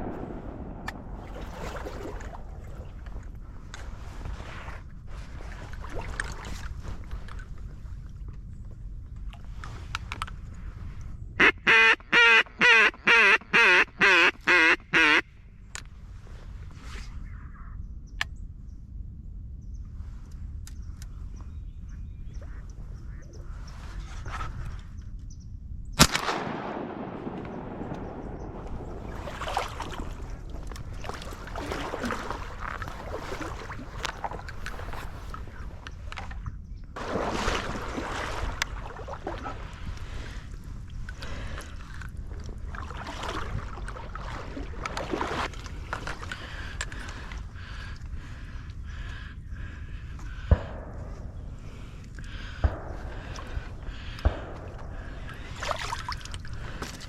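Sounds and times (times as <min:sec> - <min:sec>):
water splashing around kayak: 0:00.0 - 0:08.2, 0:26.8 - 0:57.0
wind rumble on microphone: 0:00.0 - 0:11.4, 0:15.2 - 0:57.0
duck call quacks: 0:11.4 - 0:15.2.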